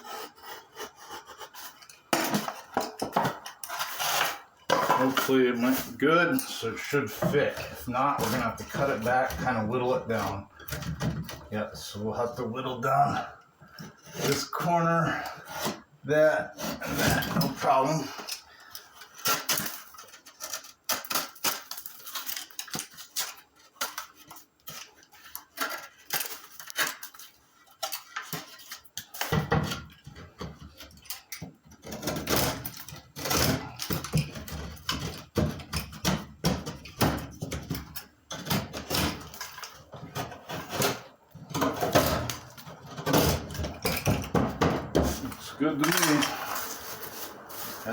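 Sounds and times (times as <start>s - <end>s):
utility knife scraping drywall: 0.0s - 2.7s, 3.6s - 10.4s
knocks and scrapes of handling: 0.0s - 47.9s.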